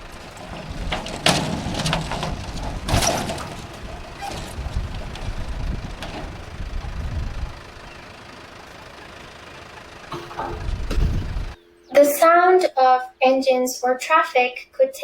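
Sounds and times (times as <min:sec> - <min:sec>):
engine knocks and clicks: 0:00.0 - 0:11.6
vehicle engine rumbling: 0:00.0 - 0:12.4.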